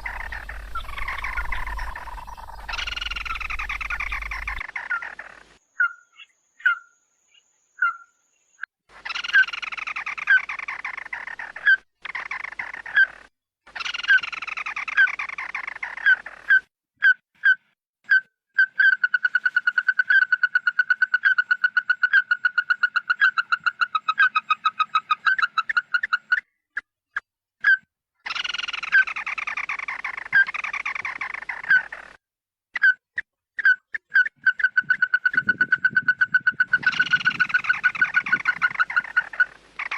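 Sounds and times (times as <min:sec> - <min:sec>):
bird harsh chattering: 0:00.0 - 0:05.4, 0:34.1 - 0:39.9.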